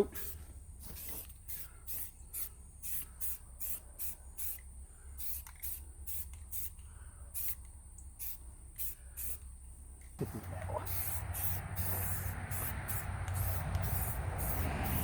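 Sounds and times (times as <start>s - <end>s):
aerosol spray hissing bursts: 8.2s - 9.4s, 10.8s - 15.0s.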